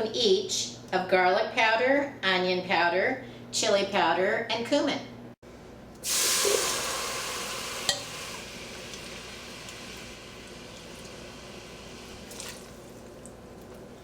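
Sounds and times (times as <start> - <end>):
chili hissing in a pot: 6.0 - 13.2.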